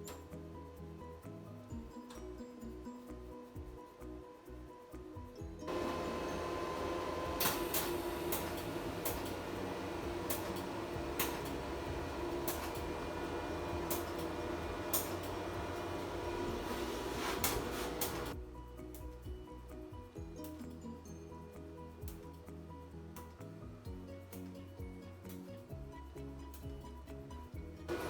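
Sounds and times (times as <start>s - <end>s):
mechanical whirring: 5.7s - 18.4s.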